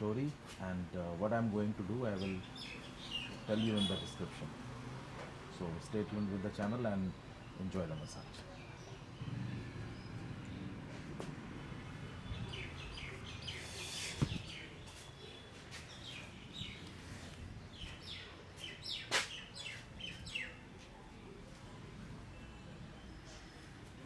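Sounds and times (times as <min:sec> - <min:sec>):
small birds chirping: 0:01.9 - 0:04.4, 0:11.9 - 0:21.0.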